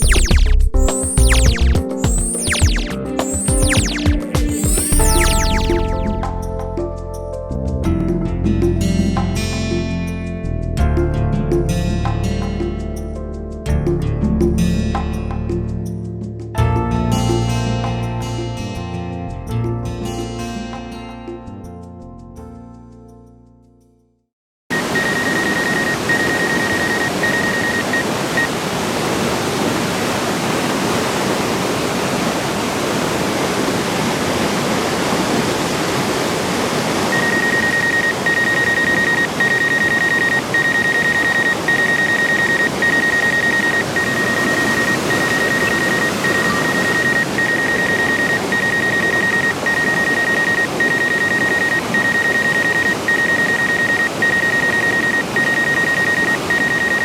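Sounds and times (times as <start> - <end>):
high electronic beep: 0.0 - 6.3, 24.7 - 28.5, 37.1 - 57.0
waterfall roar: 24.7 - 57.0.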